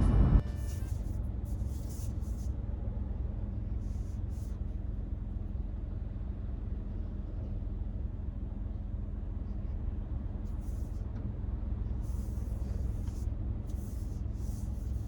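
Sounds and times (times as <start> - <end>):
car cabin rumble while driving: 0.0 - 15.0
faint steady hum: 0.0 - 15.0
short hissy bursts: 0.5 - 2.5, 10.5 - 11.0, 12.0 - 15.0.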